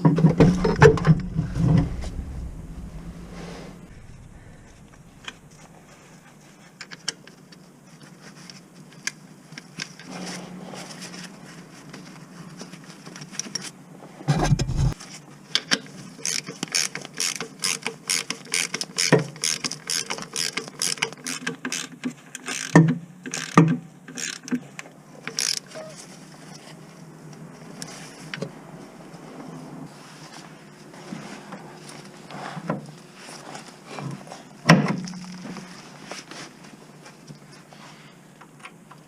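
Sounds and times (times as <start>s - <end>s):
heavy thump: 0.3s - 6.3s
ratchet wrench clicking: 16.2s - 23.6s, 25.3s - 25.6s.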